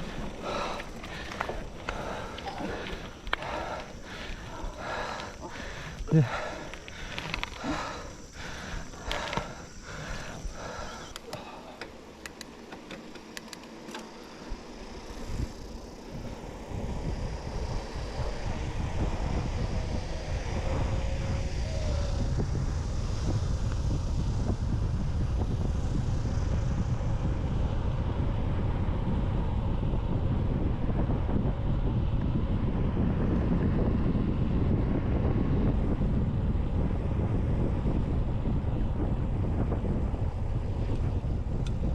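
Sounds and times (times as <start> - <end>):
wind rumble on microphone: 0.0 - 11.8, 14.5 - 41.9
bike tyre noise: 0.0 - 41.9
sharp clicks: 10.8 - 14.1.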